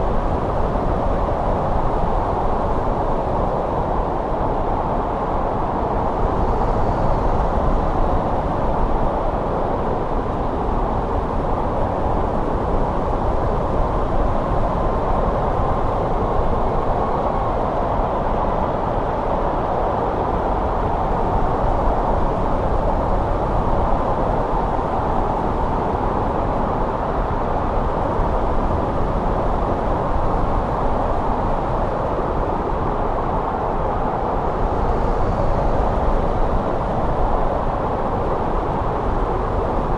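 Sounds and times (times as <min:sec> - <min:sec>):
steady wind: 0:00.0 - 0:39.9.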